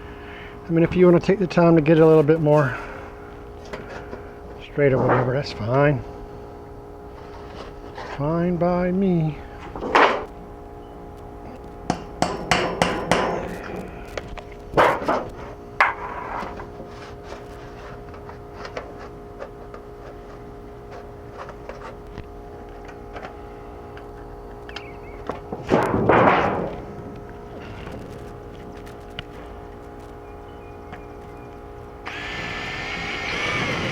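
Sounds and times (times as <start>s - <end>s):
knocks on sheet metal: 11.9s - 13.4s.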